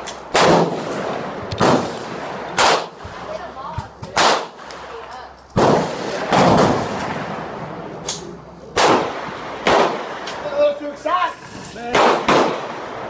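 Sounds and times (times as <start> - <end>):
gunshots echoing: 0.0 - 3.3, 4.2 - 4.7, 5.6 - 8.0, 8.7 - 10.4, 11.8 - 13.0.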